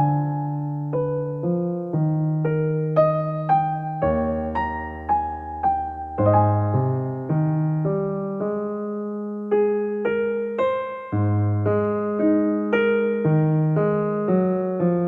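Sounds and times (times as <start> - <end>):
slow electric piano music: 0.0 - 15.0.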